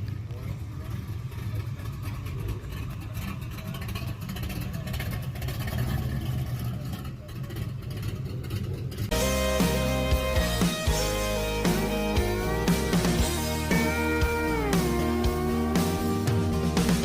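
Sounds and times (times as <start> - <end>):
car engine running: 0.0 - 17.0
guitar music: 9.1 - 17.0.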